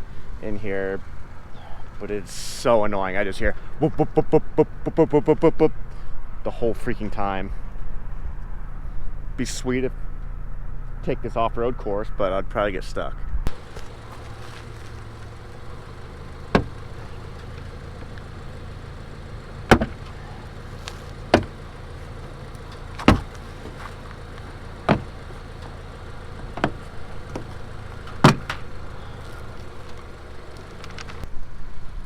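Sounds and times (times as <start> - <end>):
steady low hum: 13.2 - 32.0
plastic panel knocks and snaps: 19.7 - 19.9.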